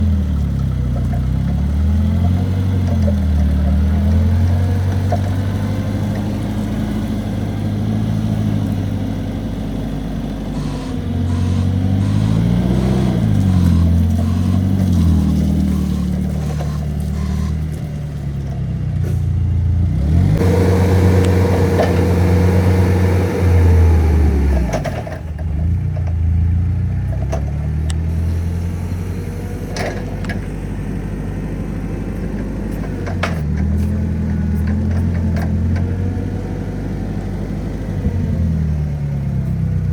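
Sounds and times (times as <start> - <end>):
forklift engine revving: 0.0 - 39.9.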